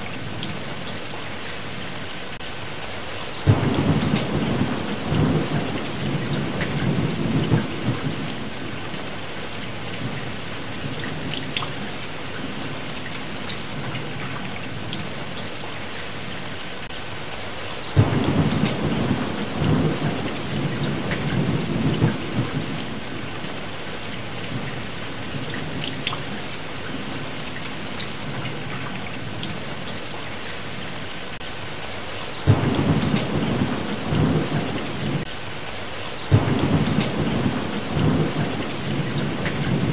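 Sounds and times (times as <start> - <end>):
steady rain: 0.0 - 39.9
rolling thunder: 3.5 - 8.7, 18.0 - 23.5, 32.4 - 35.3, 36.3 - 39.9.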